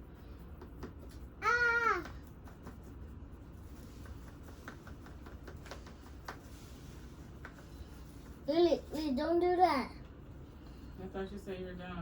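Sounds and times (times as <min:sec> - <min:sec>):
low room hum: 0:00.0 - 0:12.0
light taps and clicks of objects: 0:03.8 - 0:06.6, 0:07.3 - 0:08.4.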